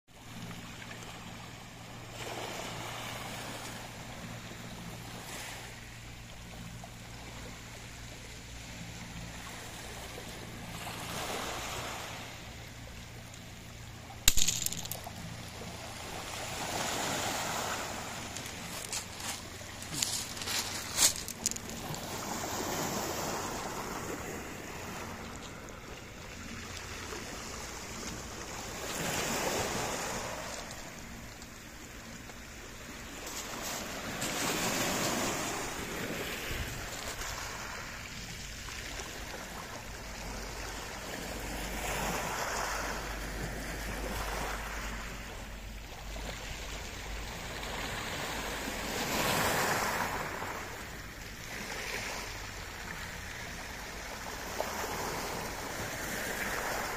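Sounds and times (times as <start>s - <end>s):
sea waves breaking on shore: 0.2s - 56.9s.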